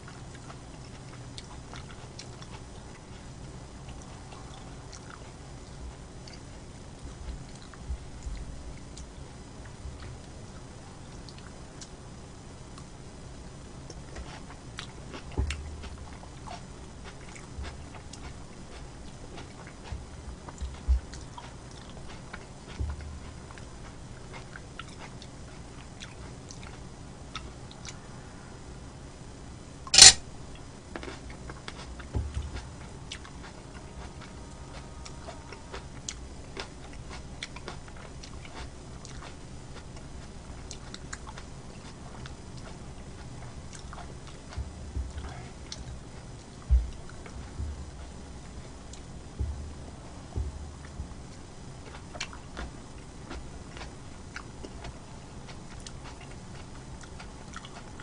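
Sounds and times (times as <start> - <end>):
mouth chewing and biting food: 0.0 - 12.0, 13.8 - 28.1, 29.9 - 58.0
low thumps: 15.4 - 16.1, 22.7 - 23.9, 31.9 - 33.4, 44.4 - 51.9
loud sharp noise: 29.9 - 30.3.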